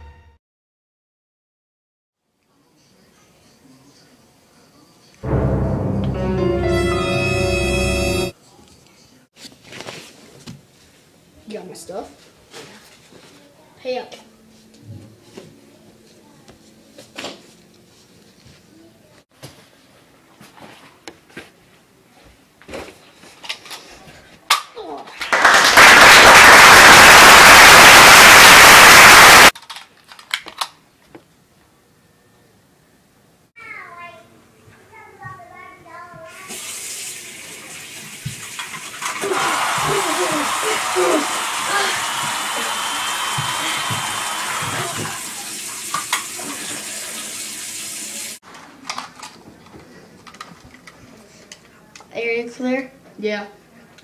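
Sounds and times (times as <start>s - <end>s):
loud harsh static noise: 26.2s - 29.5s, 39.2s - 44.9s
faucet running into sink: 36.5s - 40.4s, 42.2s - 48.4s.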